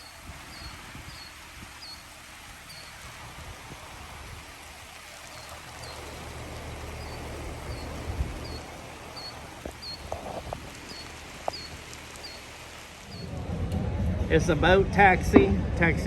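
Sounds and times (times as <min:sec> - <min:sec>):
small bird chirping: 0:00.0 - 0:03.1, 0:05.2 - 0:13.3
faint clicks: 0:07.0 - 0:13.3.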